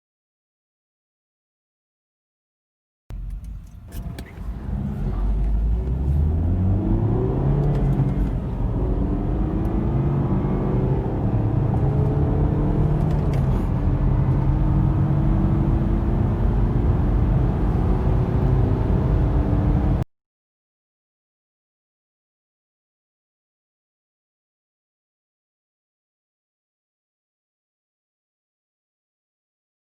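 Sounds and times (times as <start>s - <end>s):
car engine accelerating hard: 3.2s - 20.0s.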